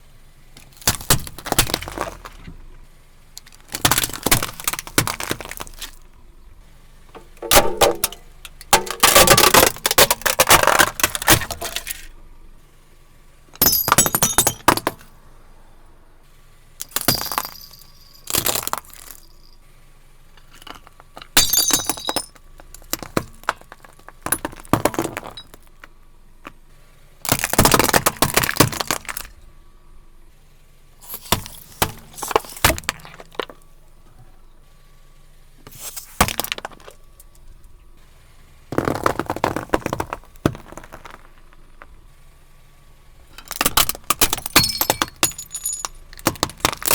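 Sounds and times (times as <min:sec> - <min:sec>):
objects crushed under car tyre: 0:00.6 - 0:12.2, 0:13.6 - 0:15.2, 0:16.8 - 0:19.6, 0:20.2 - 0:29.5, 0:31.0 - 0:46.9
plastic or glass shattering: 0:03.4 - 0:06.0, 0:07.2 - 0:12.0, 0:13.6 - 0:15.1, 0:16.8 - 0:19.5, 0:20.4 - 0:25.9, 0:35.9 - 0:37.0, 0:43.3 - 0:46.9.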